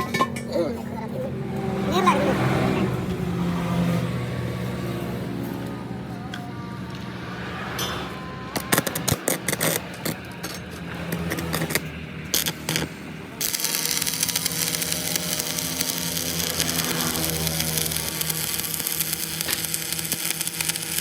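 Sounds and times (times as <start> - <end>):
machine hum: 0.0 - 21.0
sharp metallic clicks and knocks: 7.8 - 21.0
steady hissing: 12.1 - 21.0.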